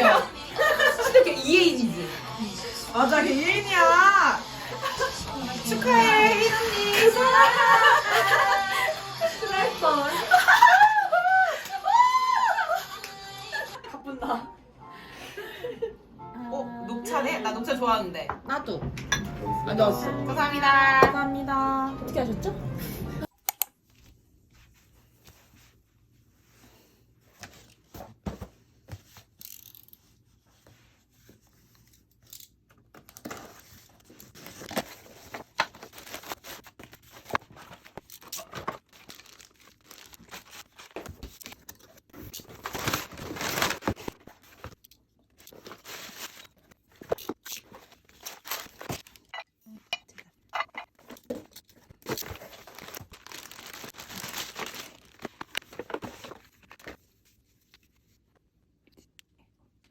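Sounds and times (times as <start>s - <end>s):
paper tearing and crinkling: 33.2s - 44.8s, 45.4s - 49.2s, 51.8s - 56.9s.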